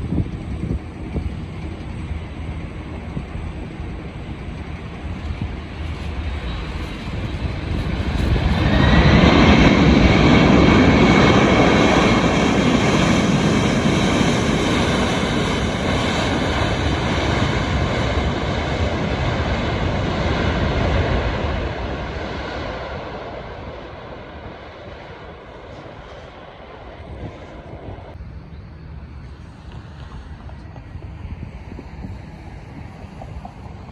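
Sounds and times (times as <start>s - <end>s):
high engine whine: 0.0s - 33.9s
jet airliner passing: 0.0s - 33.9s.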